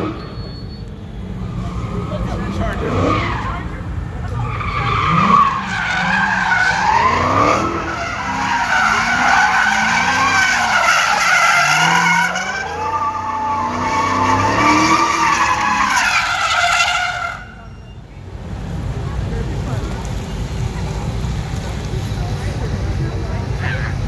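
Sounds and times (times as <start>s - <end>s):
car engine revving: 0.0s - 0.5s, 1.2s - 17.7s
tyres squealing: 0.0s - 18.1s.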